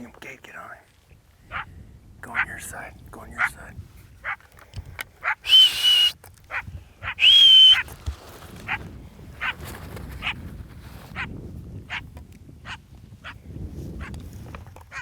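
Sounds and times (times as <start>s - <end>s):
high whistle-like calls: 5.4s - 6.2s, 7.1s - 7.8s
dogs barking and yelping: 6.5s - 7.2s.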